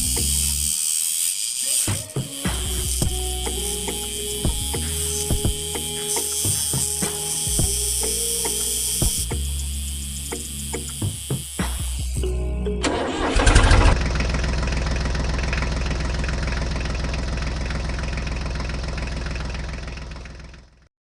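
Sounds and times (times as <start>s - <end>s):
engine starting and running: 8.4s - 20.9s.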